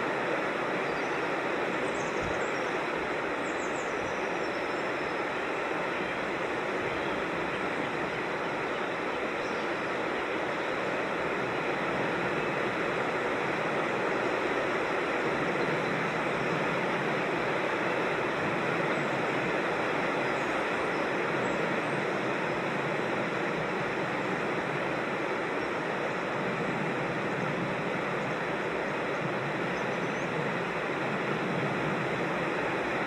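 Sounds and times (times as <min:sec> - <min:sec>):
creek water rushing over rocks: 0:00.0 - 0:33.0
faint bird chirp: 0:06.8 - 0:09.9.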